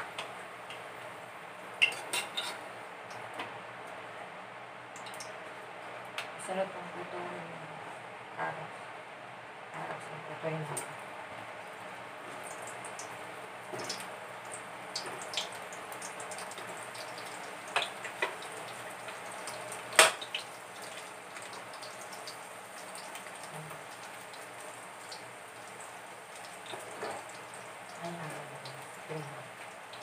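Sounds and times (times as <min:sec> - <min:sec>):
carrots sizzling in hot oil: 0:12.3 - 0:30.0.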